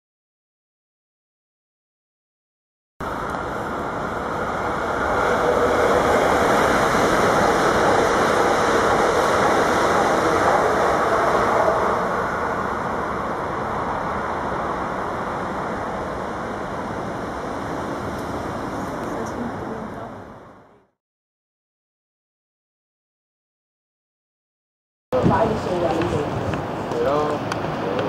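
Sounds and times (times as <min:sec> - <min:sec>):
train wheel and rail noise: 0:03.0 - 0:20.9, 0:25.2 - 0:28.0.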